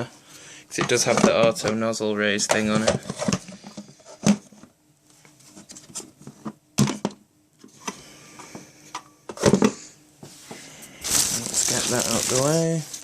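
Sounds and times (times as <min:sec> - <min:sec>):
handling parts and packaging: 0:10.7 - 0:13.0.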